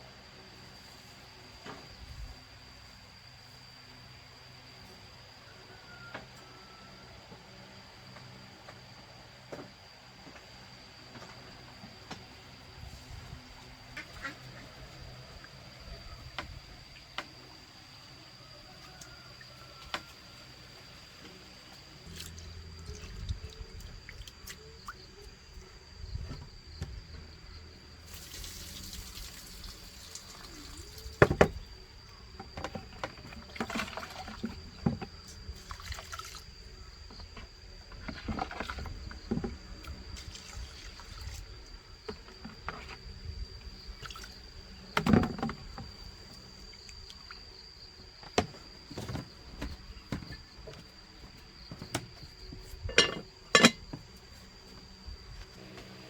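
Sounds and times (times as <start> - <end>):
water pouring and splashing: 28.1 - 31.2, 33.3 - 34.5, 35.5 - 36.6, 40.2 - 41.6
pots and utensils clinking: 52.9 - 53.9.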